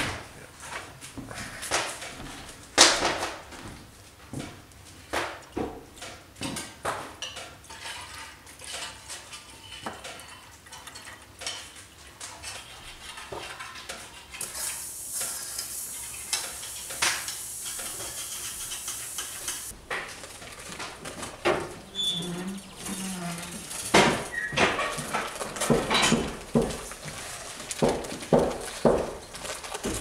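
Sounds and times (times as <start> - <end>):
wet pot sizzling on stovetop: 12.6 - 30.0
water pouring into pot: 14.4 - 30.0.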